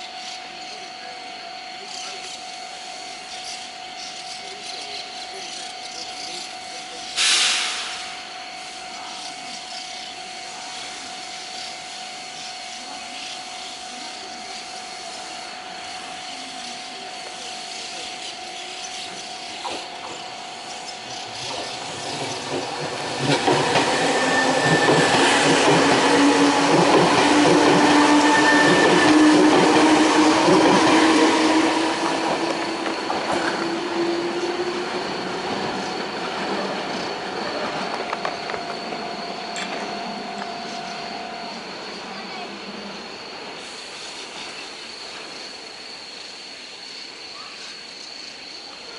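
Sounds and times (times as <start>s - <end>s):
train wheel noise: 0.0s - 47.0s
steady squealing tones: 18.0s - 44.6s.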